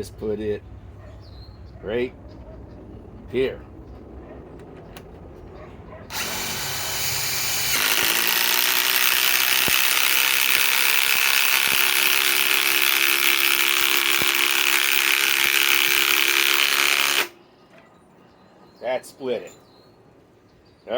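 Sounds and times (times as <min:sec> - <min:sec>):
impact wrench hammering: 0:06.1 - 0:17.3
wood splitting: 0:06.1 - 0:17.3.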